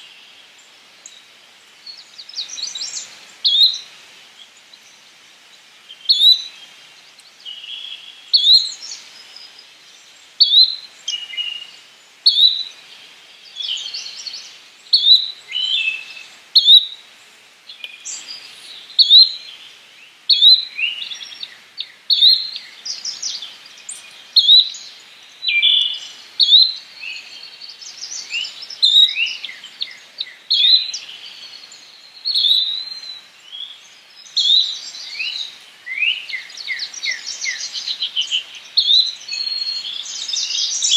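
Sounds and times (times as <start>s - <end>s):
faint bird chirps: 17.7s - 40.9s.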